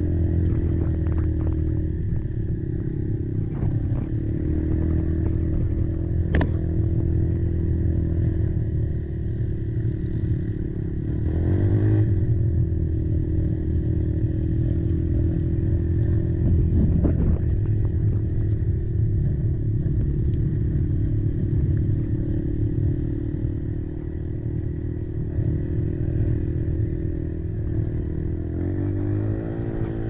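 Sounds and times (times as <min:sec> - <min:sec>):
quad bike engine running: 0:00.0 - 0:30.0.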